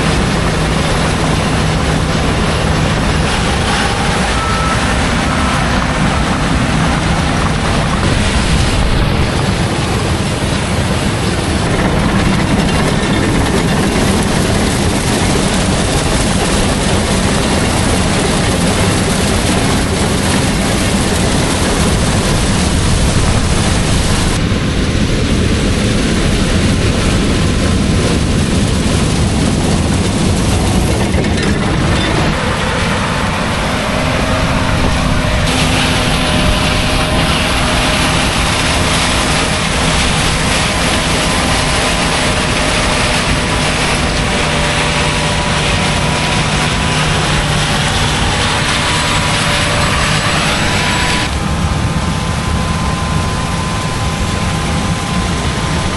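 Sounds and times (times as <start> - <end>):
diesel farm machinery running: 0.0 - 55.9.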